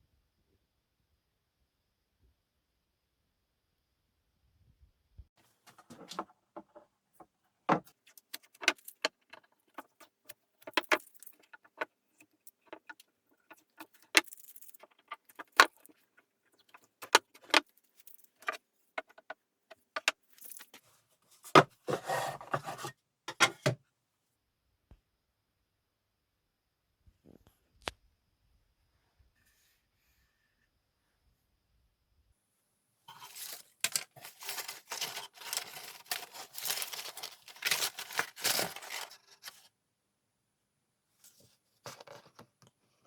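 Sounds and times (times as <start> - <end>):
scraping rattle: 33.1 - 39.6.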